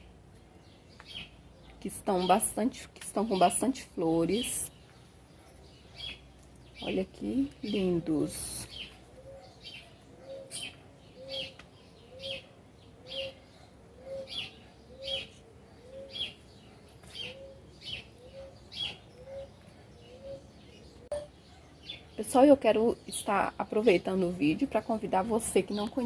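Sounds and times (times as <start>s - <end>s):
high bird chirps: 4.3s - 22.2s
bird cooing: 8.2s - 21.6s.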